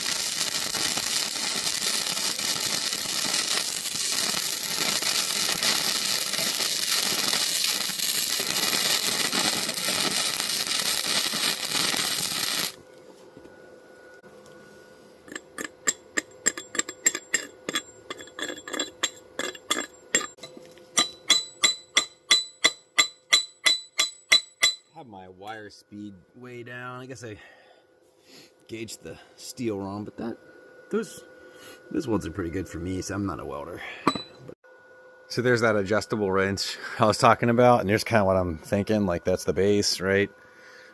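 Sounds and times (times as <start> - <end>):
welder arc crackling hiss: 0.0 - 12.8
ringing metallic taps: 15.8 - 24.9.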